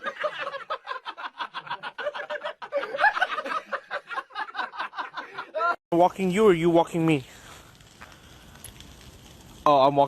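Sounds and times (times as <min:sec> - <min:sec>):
person laughing: 0:00.2 - 0:05.8.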